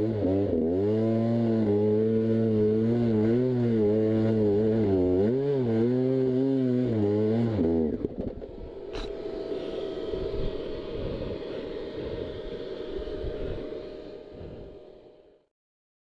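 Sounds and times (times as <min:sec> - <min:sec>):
dirt bike engine running: 0:00.0 - 0:14.8
wind noise: 0:08.0 - 0:15.0.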